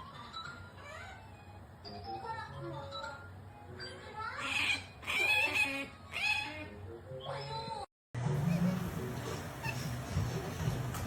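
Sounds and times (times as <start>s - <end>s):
otter squeaking: 8.3s - 11.0s.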